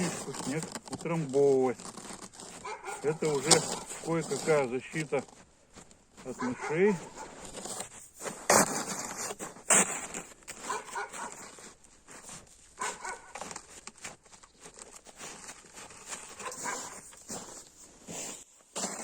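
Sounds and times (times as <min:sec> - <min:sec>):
scraping: 0:00.0 - 0:11.6
snow crunching: 0:00.0 - 0:19.0.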